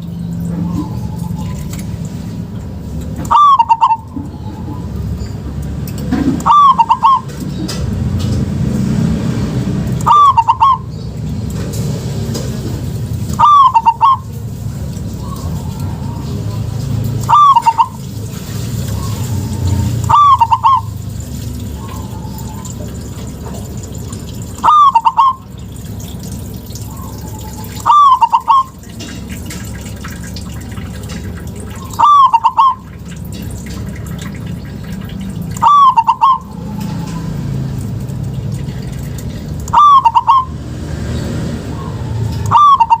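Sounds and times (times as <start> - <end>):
dove cooing: 3.2 - 4.9, 6.2 - 7.8, 10.0 - 10.9, 13.3 - 23.7, 24.6 - 25.5, 26.8 - 33.2, 34.1 - 37.7, 38.7 - 40.5, 41.7 - 43.0.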